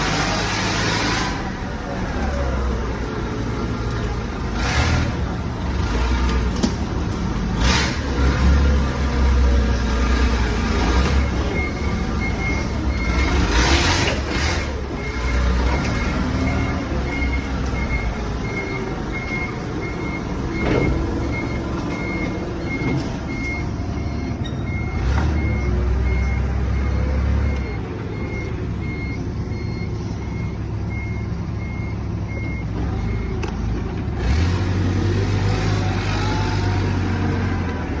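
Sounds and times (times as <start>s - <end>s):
truck engine running: 0.0s - 38.0s
reversing alarm beeping: 10.6s - 33.4s.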